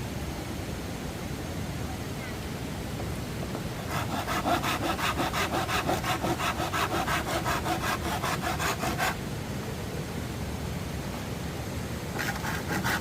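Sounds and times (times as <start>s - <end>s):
hand saw cutting wood: 3.8s - 9.2s, 12.2s - 13.0s.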